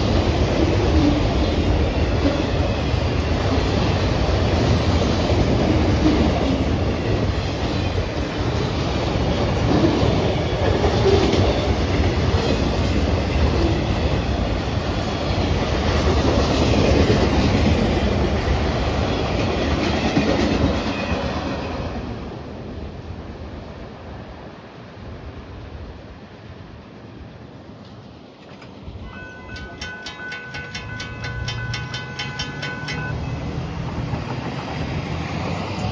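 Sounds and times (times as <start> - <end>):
train wheels clacking over rail joints: 28.4 - 35.6.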